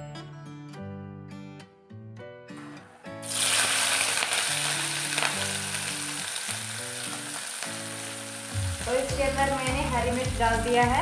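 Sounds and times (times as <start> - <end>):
background music: 0.0 - 11.0
chillies sizzling in hot oil: 3.2 - 11.0.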